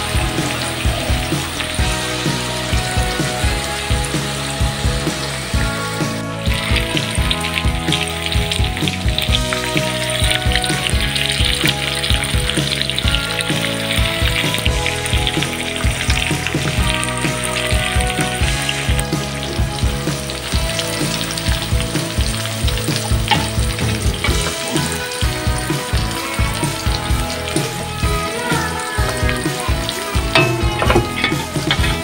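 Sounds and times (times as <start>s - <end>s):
onions sizzling in hot oil: 0.0s - 32.0s
metal spatula scraping pan: 30.2s - 32.0s.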